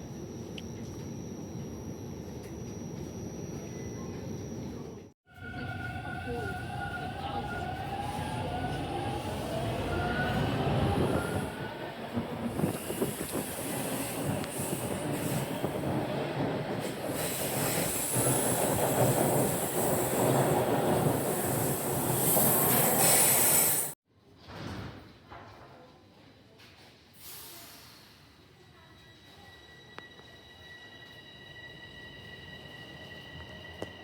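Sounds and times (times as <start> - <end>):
train rolling on rails: 0.1 - 24.0
strong hiss: 16.9 - 24.0.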